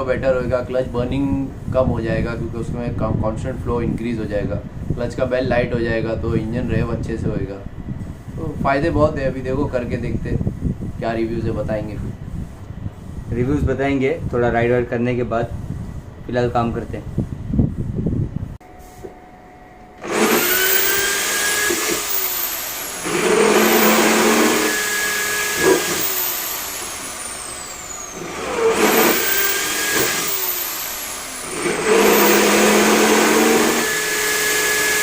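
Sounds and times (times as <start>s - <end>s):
electric drill boring metal: 20.0s - 35.0s.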